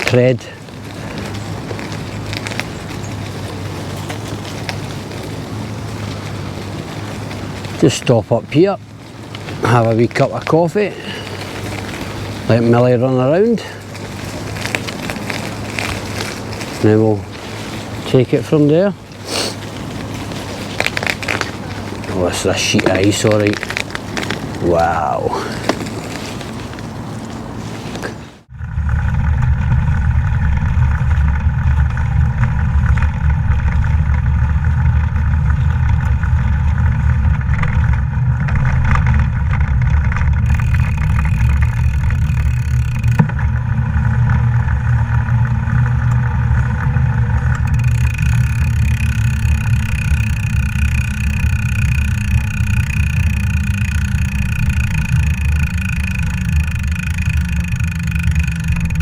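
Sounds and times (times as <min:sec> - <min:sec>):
wind rumble on microphone: 0:00.0 - 0:59.0.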